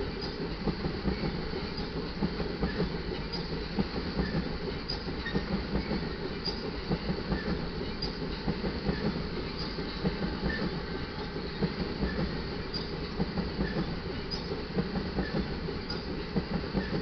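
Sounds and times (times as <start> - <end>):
train cars rumbling on rails: 0.0 - 17.0
wheels clicking over rail joints: 0.1 - 17.0.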